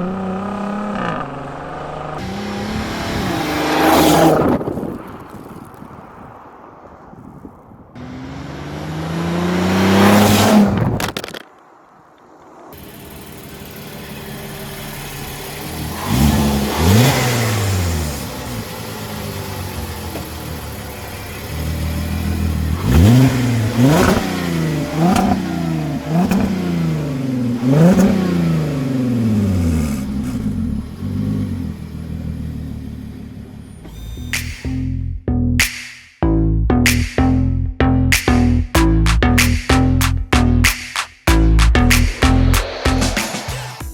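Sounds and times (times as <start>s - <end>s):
car engine revving: 0.0s - 5.7s, 8.0s - 11.4s, 12.7s - 35.0s, 41.3s - 43.9s
car engine idling: 12.0s - 34.9s.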